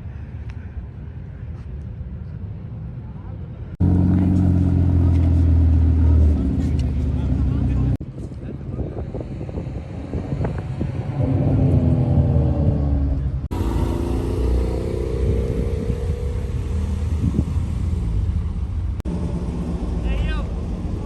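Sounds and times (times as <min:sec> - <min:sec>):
car engine accelerating: 0:03.8 - 0:08.0, 0:11.0 - 0:21.0.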